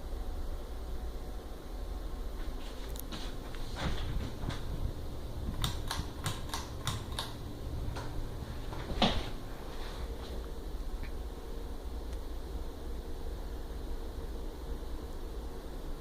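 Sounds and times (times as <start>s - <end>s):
ceiling fan humming: 0.0s - 16.0s
sharp clicks: 5.5s - 8.2s.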